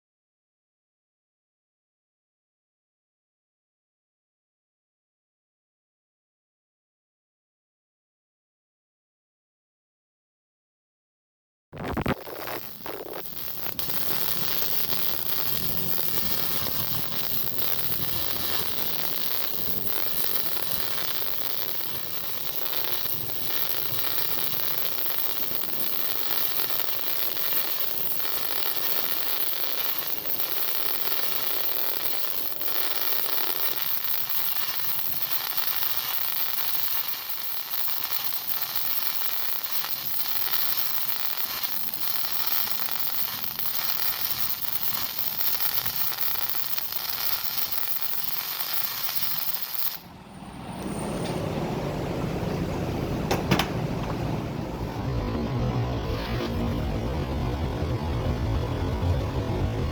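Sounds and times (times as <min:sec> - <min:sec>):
welding arc crackling: 0:11.8 - 0:50.2.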